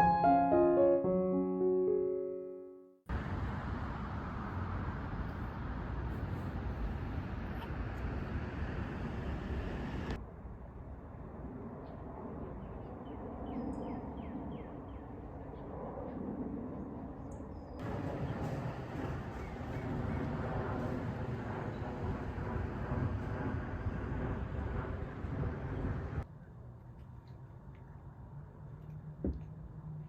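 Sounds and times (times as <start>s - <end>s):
distant traffic rumble and hiss: 3.1s - 10.2s, 17.8s - 30.0s.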